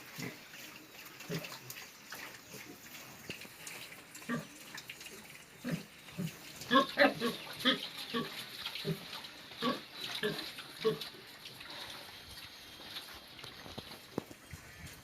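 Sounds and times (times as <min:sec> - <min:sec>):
pigs grunting: 0:01.2 - 0:01.7, 0:04.2 - 0:04.6, 0:05.6 - 0:12.1.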